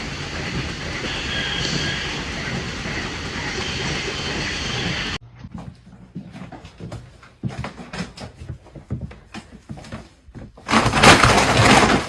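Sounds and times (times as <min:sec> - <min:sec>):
steady rumbling: 0:00.0 - 0:05.4.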